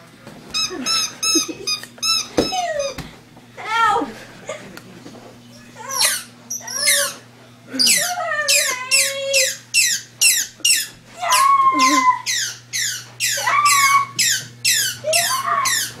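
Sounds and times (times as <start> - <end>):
shrill sliding squeaks: 5.9 - 7.2, 7.8 - 16.0
wavering squeals: 7.8 - 16.0.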